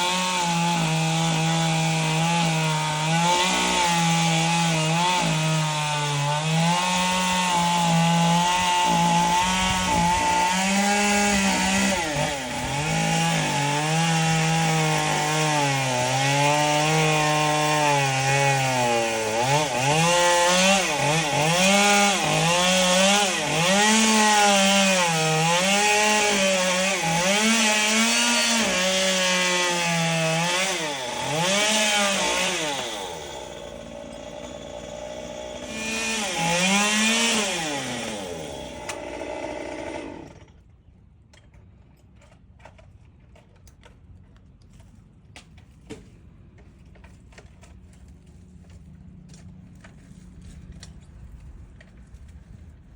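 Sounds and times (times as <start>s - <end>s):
chainsaw cutting wood: 0.0s - 40.7s.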